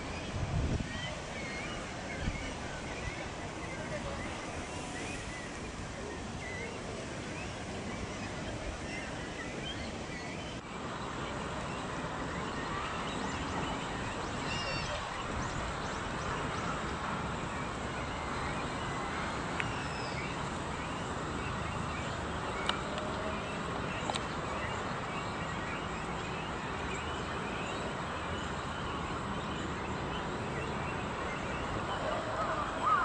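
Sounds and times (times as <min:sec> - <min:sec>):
distant traffic hum: 0:00.0 - 0:33.0
faint bird chirps: 0:12.5 - 0:15.6.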